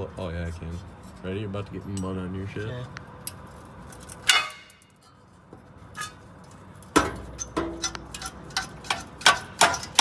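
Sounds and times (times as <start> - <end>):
metal clanking under a car: 3.2 - 10.0.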